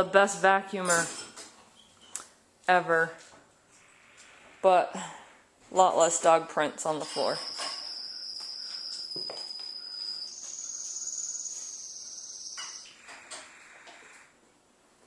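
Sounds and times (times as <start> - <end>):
high-pitched insect trill: 7.1 - 13.0.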